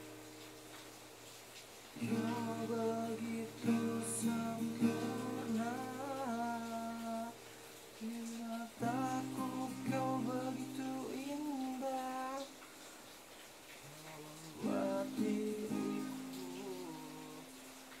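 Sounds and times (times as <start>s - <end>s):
acoustic guitar strumming chords: 2.0s - 7.4s, 8.6s - 12.6s, 14.6s - 17.6s.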